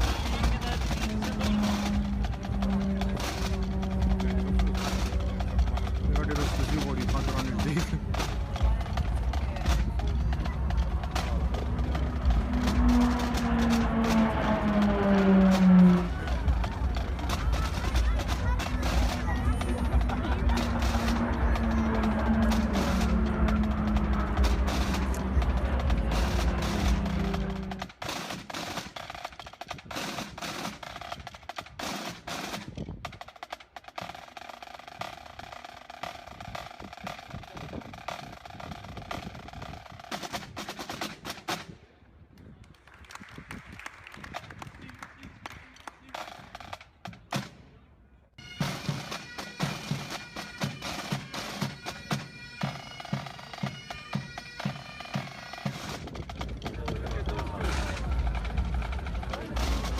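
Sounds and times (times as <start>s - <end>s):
bagpipes playing: 0.0s - 6.0s, 10.7s - 27.9s, 48.4s - 56.0s
snare drum taps and rolls: 0.0s - 41.7s, 43.2s - 47.6s.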